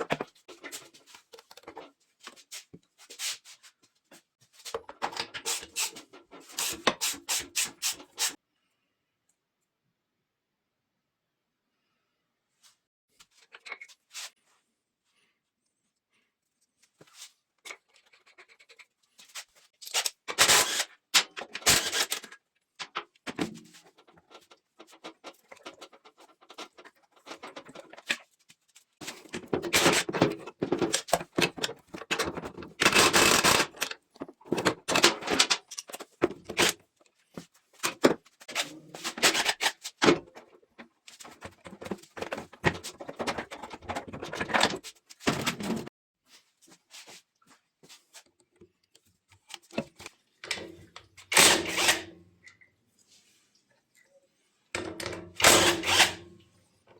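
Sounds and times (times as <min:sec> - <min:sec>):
tools scraping and clinking: 0:17.0 - 0:28.4, 0:29.0 - 0:45.9, 0:49.4 - 0:52.6, 0:54.8 - 0:56.4.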